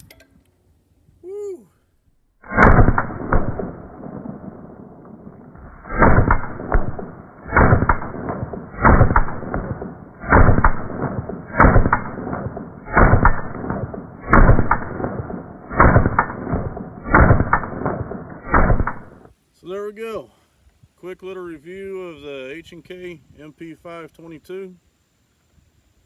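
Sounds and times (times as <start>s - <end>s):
muffled gunshot booms: 2.4s - 19.2s.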